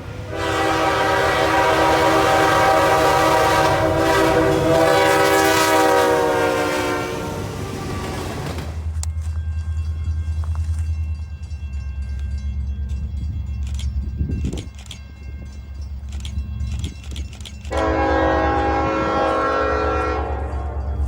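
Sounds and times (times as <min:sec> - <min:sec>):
locomotive horn chord: 0:00.0 - 0:08.4, 0:17.7 - 0:21.0
diesel locomotive rumbling: 0:00.0 - 0:21.0
wheels clicking over rails: 0:07.4 - 0:10.9.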